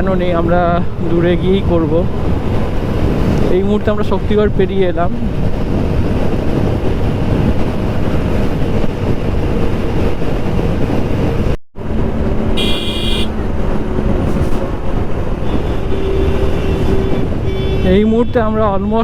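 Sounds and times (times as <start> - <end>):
wind noise on microphone: 0.0 - 19.0
vehicle horn honking: 12.6 - 13.3, 15.5 - 17.9.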